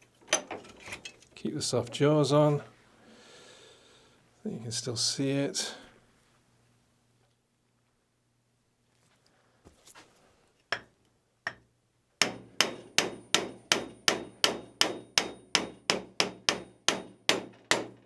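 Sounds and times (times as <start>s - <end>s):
hammer striking metal wheel: 12.2s - 18.0s.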